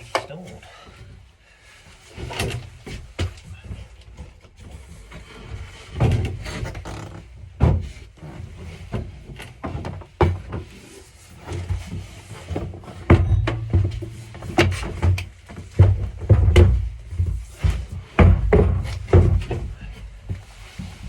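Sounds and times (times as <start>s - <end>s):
plastic water tank knocks and thuds: 7.6s - 8.0s, 12.9s - 21.0s.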